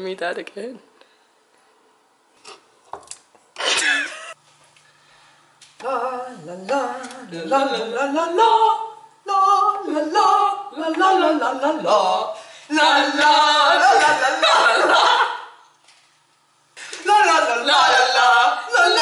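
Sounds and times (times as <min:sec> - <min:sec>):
person singing wordlessly: 0:05.8 - 0:15.4, 0:17.0 - 0:19.0.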